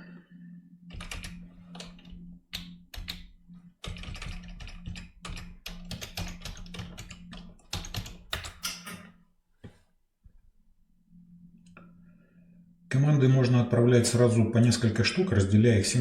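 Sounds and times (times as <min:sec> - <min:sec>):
keyboard typing clicks: 0:00.9 - 0:08.8
low hum: 0:10.3 - 0:16.0.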